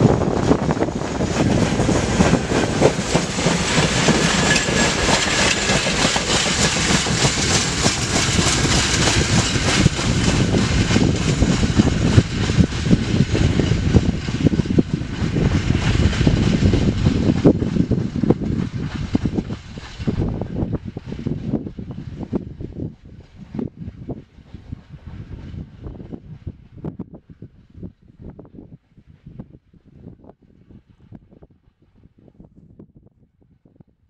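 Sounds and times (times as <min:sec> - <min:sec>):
freight train rumbling: 0:00.0 - 0:33.6
wind buffeting microphone: 0:00.0 - 0:34.0
wheels clattering: 0:00.8 - 0:18.0.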